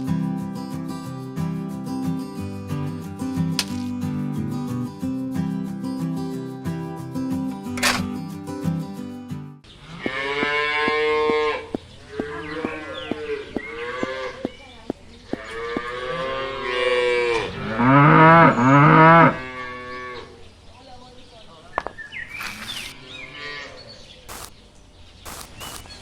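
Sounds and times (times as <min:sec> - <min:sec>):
cattle mooing: 0:16.6 - 0:20.2.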